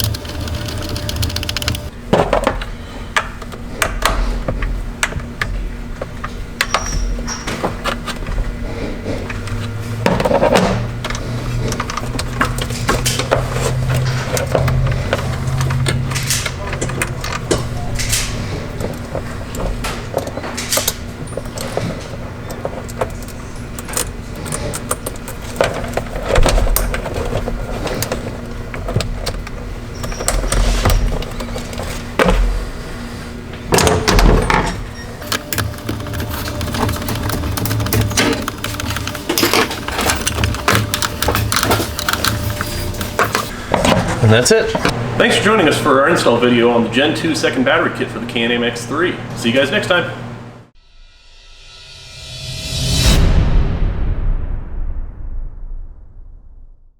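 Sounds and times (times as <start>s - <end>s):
steady low hum: 0.0s - 56.9s
tools clinking against metal: 33.8s - 43.5s.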